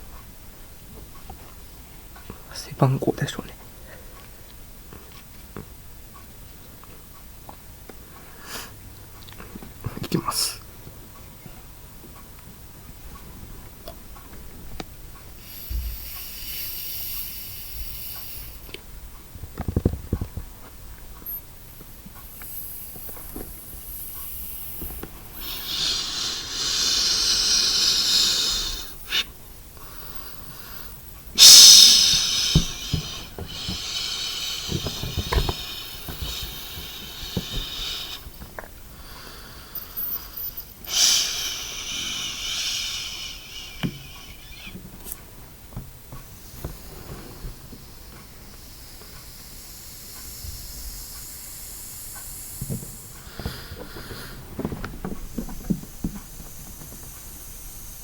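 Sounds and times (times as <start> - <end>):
hissing breath puffs into balloon: 15.4 - 18.7, 22.2 - 45.2, 46.2 - 58.0.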